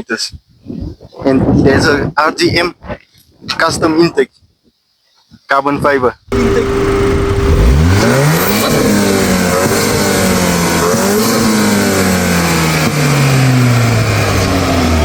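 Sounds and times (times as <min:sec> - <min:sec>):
car engine revving: 0:06.3 - 0:15.0.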